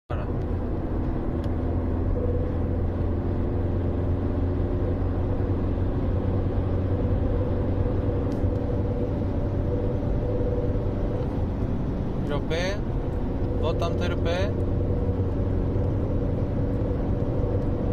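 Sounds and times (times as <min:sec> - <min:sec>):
car engine low rumble: 0:00.1 - 0:17.9
humming whine: 0:00.1 - 0:17.9.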